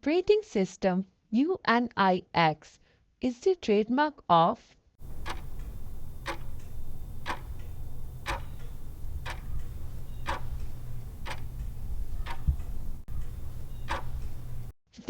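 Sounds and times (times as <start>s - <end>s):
clock ticking: 5.0s - 14.7s
steady low hum: 5.0s - 14.8s.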